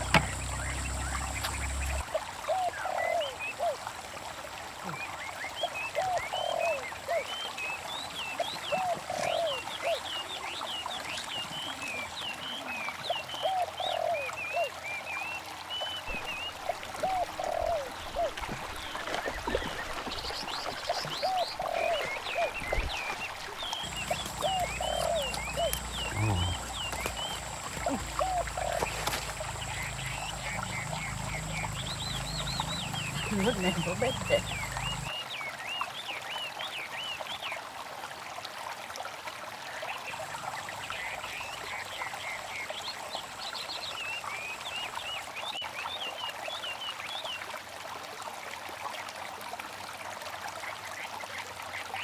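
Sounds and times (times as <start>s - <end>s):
lower animal call: 23.8s - 35.1s.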